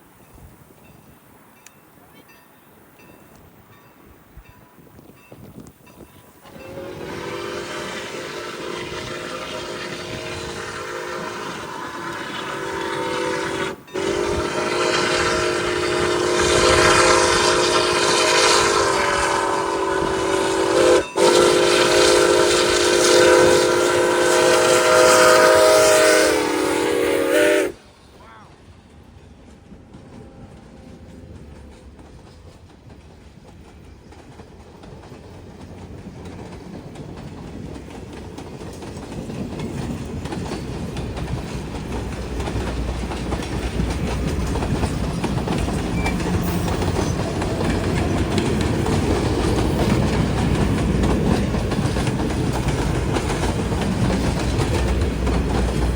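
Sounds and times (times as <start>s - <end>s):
train wheels rolling: 0.0s - 55.9s
locomotive air horn blasts: 6.4s - 27.9s.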